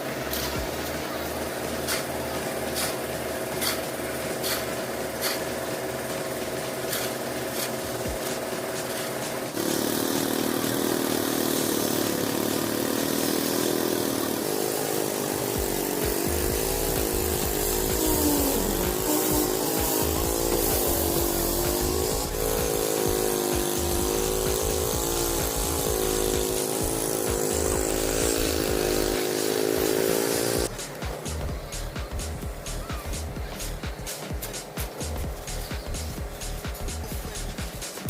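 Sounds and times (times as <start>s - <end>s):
machinery engine running: 0.0s - 38.0s.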